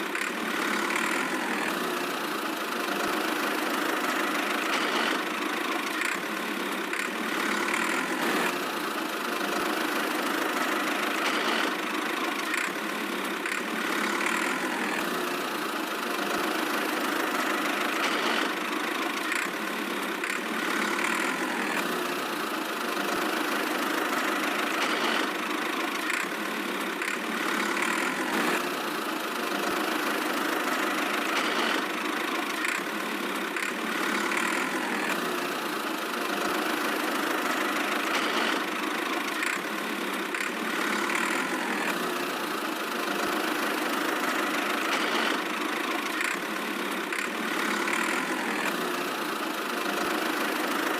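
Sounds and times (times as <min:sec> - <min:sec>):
tractor engine idling: 0:00.0 - 0:50.9.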